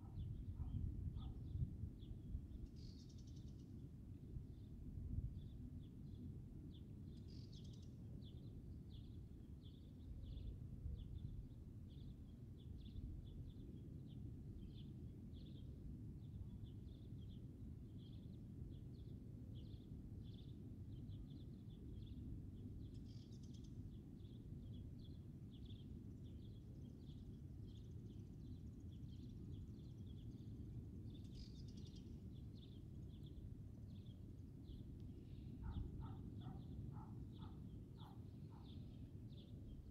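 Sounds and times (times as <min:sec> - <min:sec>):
small bird chirping: 0:00.0 - 0:03.7, 0:22.8 - 0:39.9.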